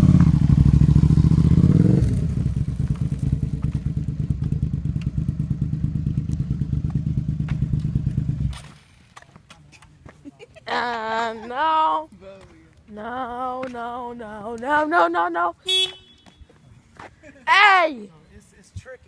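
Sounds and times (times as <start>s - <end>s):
motorcycle engine revving and idling: 0.0s - 9.2s.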